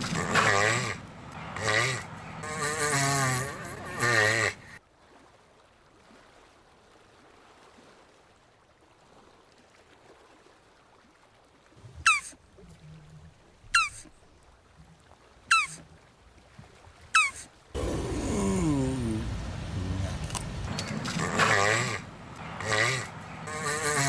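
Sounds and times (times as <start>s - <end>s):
tortoise high squeaks: 0.0s - 4.8s, 12.0s - 12.4s, 13.7s - 14.1s, 15.5s - 15.8s, 17.2s - 24.0s.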